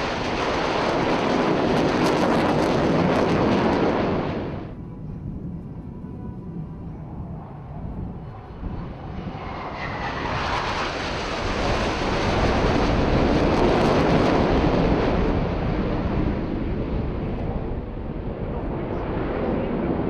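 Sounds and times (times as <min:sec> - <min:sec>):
aircraft engine flying past: 0:00.0 - 0:20.0.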